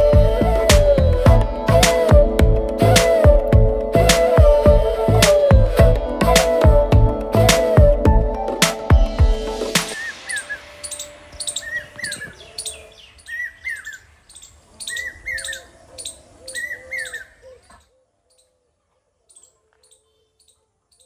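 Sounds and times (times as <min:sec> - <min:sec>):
birds chirping: 0:09.6 - 0:21.0.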